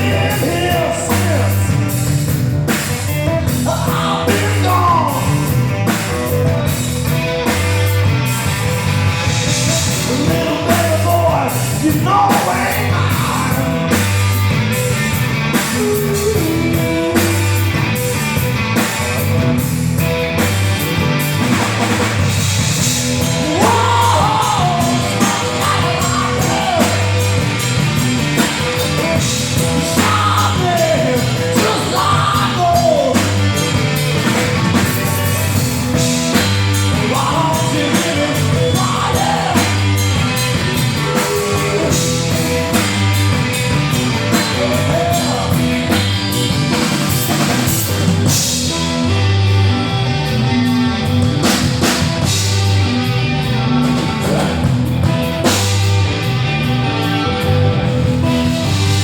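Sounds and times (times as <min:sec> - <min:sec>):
lead voice wailing: 0:00.0 - 0:01.9, 0:03.5 - 0:05.6, 0:09.5 - 0:13.9, 0:22.8 - 0:33.9, 0:36.9 - 0:42.7
rock band playing blues riff: 0:00.0 - 0:59.0.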